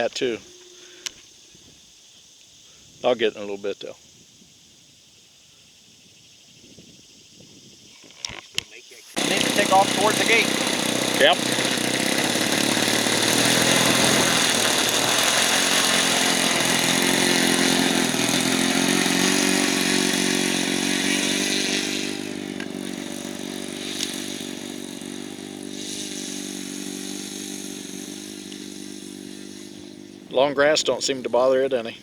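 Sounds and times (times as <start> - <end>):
model airplane motor buzzing: 9.2 - 31.5.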